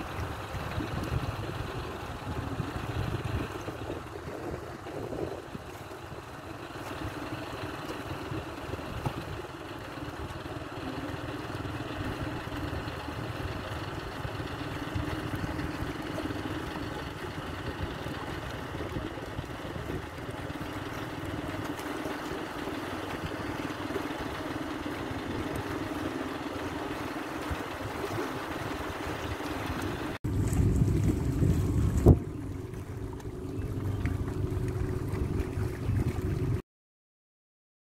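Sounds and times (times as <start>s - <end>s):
wind noise on microphone: 0.0s - 6.3s, 17.6s - 20.7s, 27.4s - 36.6s
boat engine running: 0.0s - 36.6s.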